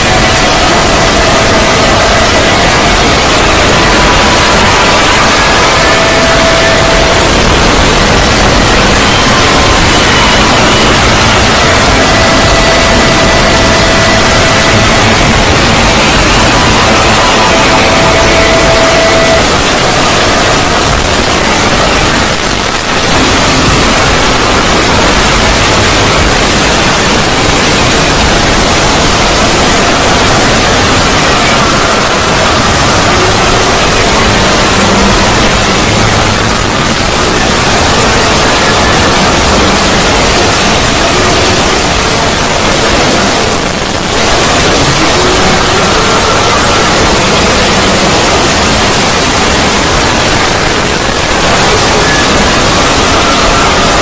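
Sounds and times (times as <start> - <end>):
dense wall of static noise: 0.0 - 54.0
faint tones: 0.0 - 54.0.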